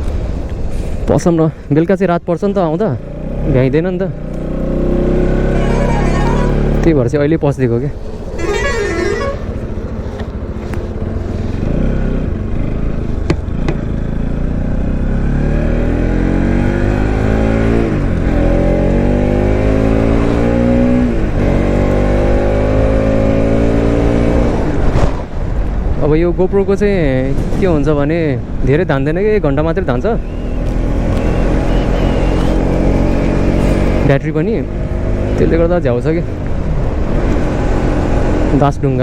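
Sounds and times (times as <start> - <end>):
motorcycle engine accelerating: 3.0 - 7.2, 7.8 - 25.3, 30.0 - 38.8.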